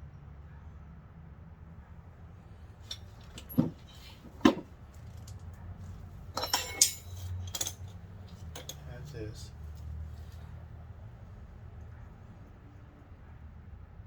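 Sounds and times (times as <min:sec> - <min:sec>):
dull knocks of metal parts: 0:02.8 - 0:05.4, 0:06.3 - 0:08.9
metallic ring: 0:02.9 - 0:04.6, 0:06.4 - 0:07.9
metallic clinks: 0:02.9 - 0:05.4, 0:06.3 - 0:08.9.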